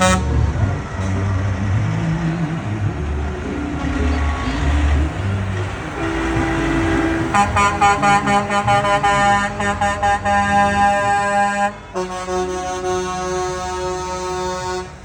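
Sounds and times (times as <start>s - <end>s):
truck horn blaring notes: 0.0s - 1.3s, 5.6s - 15.0s.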